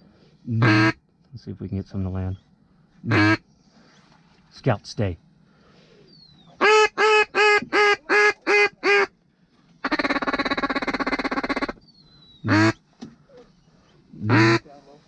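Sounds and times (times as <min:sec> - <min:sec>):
duck call quacks: 0:00.6 - 0:01.0, 0:03.1 - 0:03.4, 0:06.6 - 0:09.1, 0:09.8 - 0:11.8, 0:12.5 - 0:12.8, 0:14.2 - 0:14.7
fast duck call feed chatter: 0:06.6 - 0:09.1, 0:09.8 - 0:11.8, 0:14.3 - 0:14.7.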